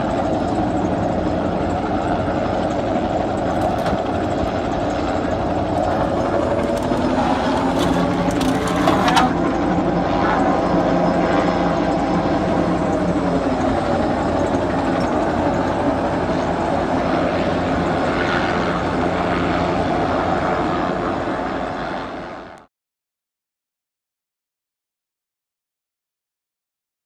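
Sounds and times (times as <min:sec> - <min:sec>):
powered machine running: 0:00.2 - 0:09.9.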